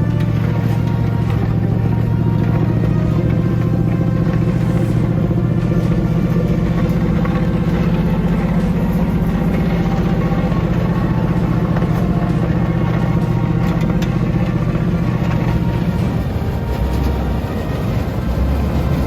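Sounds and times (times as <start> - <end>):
off-road vehicle engine under load: 0.0 - 19.0.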